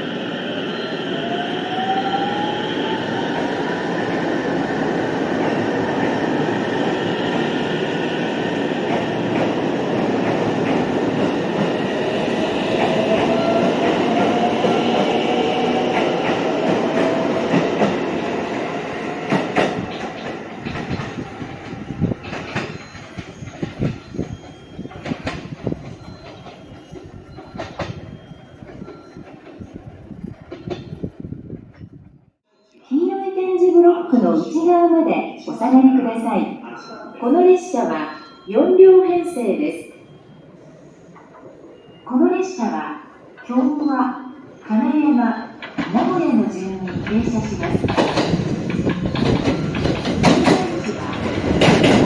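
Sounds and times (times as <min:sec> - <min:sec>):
train cars rumbling: 0:00.0 - 0:32.4, 0:40.0 - 0:52.0
wheels clicking over rail joints: 0:19.2 - 0:31.1, 0:46.8 - 0:52.0.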